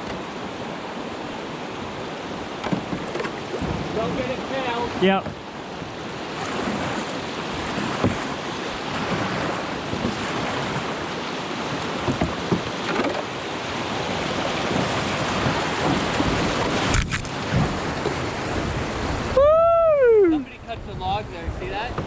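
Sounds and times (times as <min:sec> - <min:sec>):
whitewater rapids rushing: 0:03.6 - 0:20.7.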